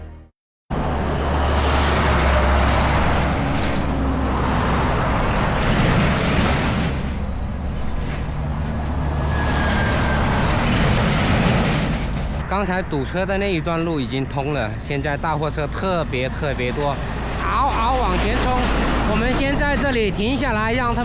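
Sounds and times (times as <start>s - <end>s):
heavy trucks driving past: 0.0s - 21.0s.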